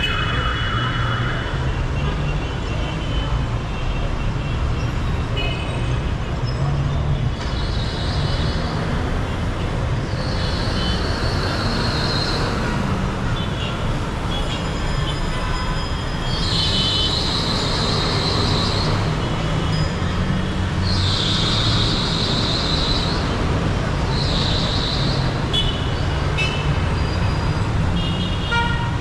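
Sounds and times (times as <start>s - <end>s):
city street traffic: 0.0s - 29.0s
high-pitched squeals: 13.9s - 25.5s.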